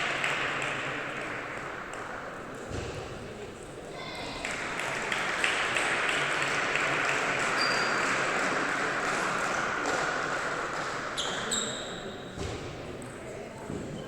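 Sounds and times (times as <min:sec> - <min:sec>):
shoe squeaks on hall floor: 0:07.6 - 0:08.0, 0:11.2 - 0:12.4.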